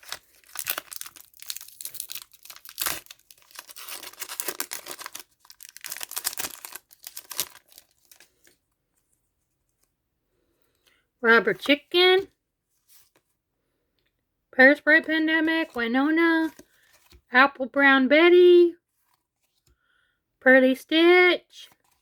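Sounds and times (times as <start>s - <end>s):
wrapper tearing and crinkling: 0.0s - 8.5s.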